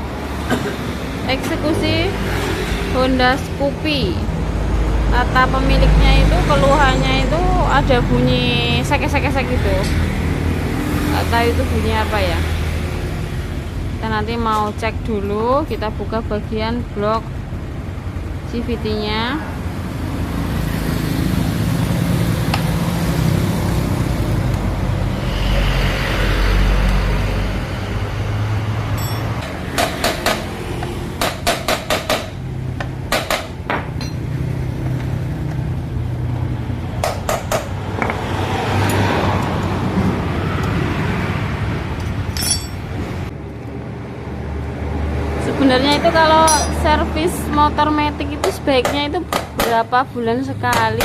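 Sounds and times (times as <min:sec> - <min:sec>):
metal hand tools clinking: 0:28.9 - 0:29.6, 0:42.3 - 0:42.9, 0:46.4 - 0:46.8.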